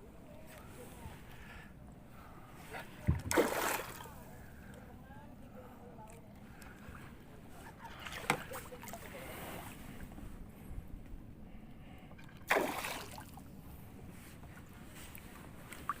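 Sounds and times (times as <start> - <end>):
water lapping and splashing: 2.9 - 4.4, 7.7 - 10.1, 12.1 - 13.7, 14.8 - 16.0.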